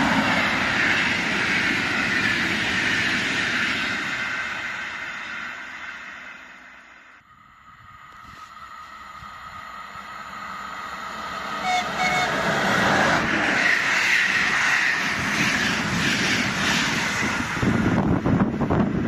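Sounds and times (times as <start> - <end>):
train passing at speed: 0.0 - 19.0
wheels rushing on rails: 0.0 - 19.0
train horn toots: 11.5 - 12.6.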